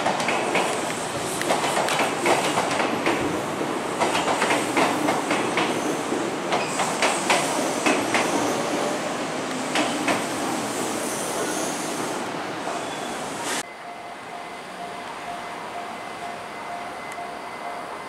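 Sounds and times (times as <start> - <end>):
train wheels clicking over rails: 0.0 - 12.1.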